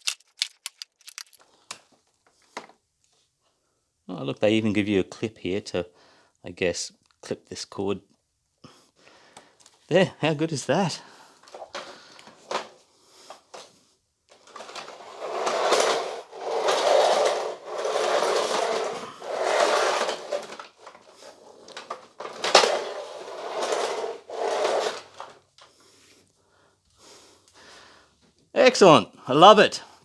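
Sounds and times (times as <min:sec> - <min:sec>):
hands rubbing plastic: 0:00.0 - 0:01.4
sharp click: 0:00.0 - 0:01.4.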